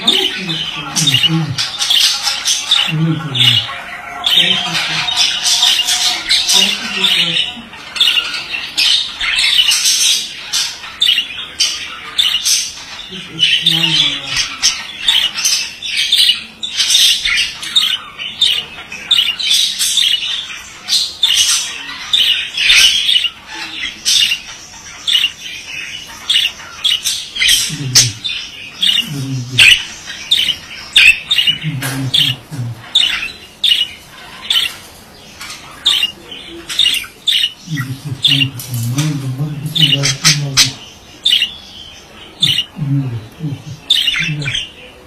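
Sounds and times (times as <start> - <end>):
budgie chattering and warbling: 0.0 - 44.9.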